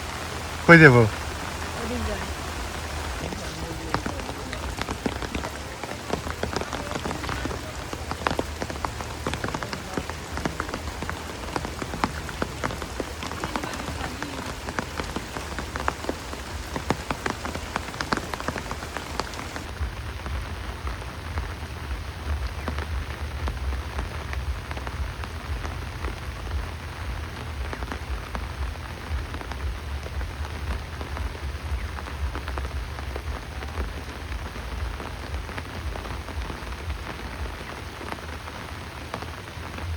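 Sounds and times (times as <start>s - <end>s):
raindrops striking close by: 0.0s - 39.9s
steady rain falling: 0.0s - 39.9s
low rumble: 19.6s - 37.5s.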